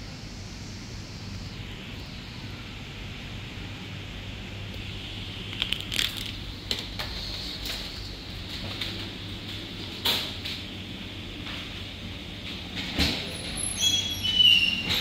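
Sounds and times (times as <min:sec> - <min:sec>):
sharp crackles and clicks: 0:05.4 - 0:06.4.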